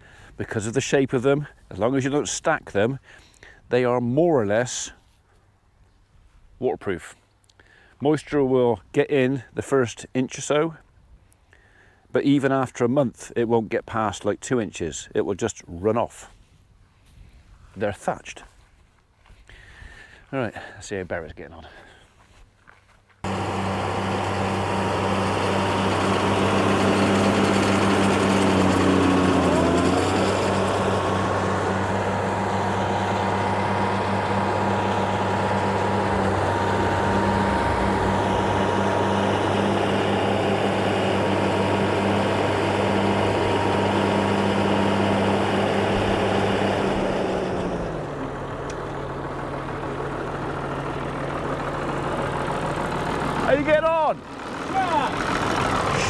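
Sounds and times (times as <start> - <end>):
tractor engine running: 23.2 - 56.0.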